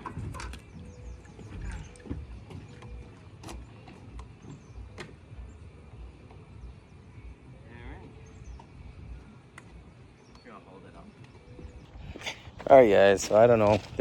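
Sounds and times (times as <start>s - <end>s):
outboard motor idling: 0.0s - 6.8s.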